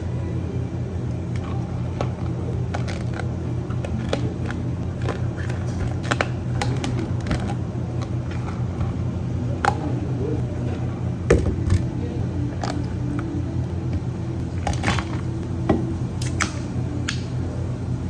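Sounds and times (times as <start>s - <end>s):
low machine hum: 0.0s - 18.0s
cups and utensils clicking: 1.3s - 11.9s.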